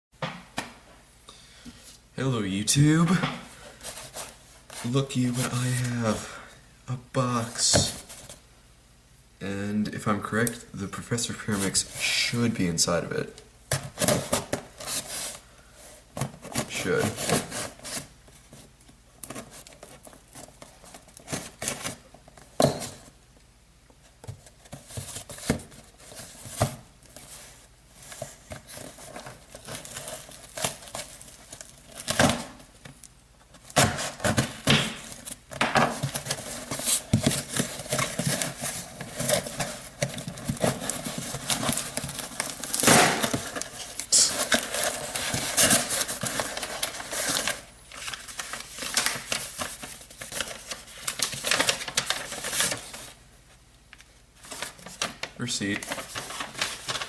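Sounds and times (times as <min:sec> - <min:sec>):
packaging crinkling and rustling: 0:24.2 - 0:53.2, 0:53.9 - 0:57.0.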